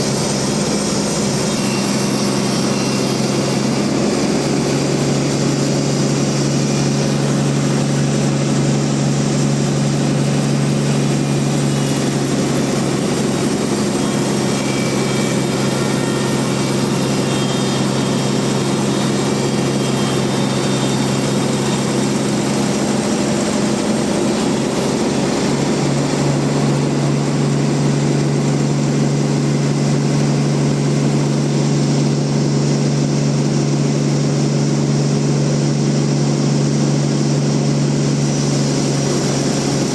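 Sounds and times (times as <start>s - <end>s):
band sawmill cutting log: 0.0s - 39.9s.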